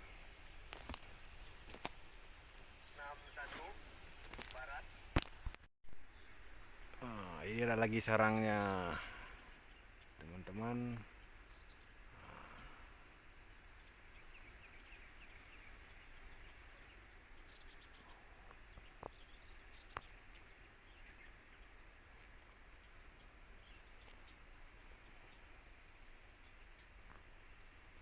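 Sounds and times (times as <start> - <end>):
background hiss: 0.0 - 16.8.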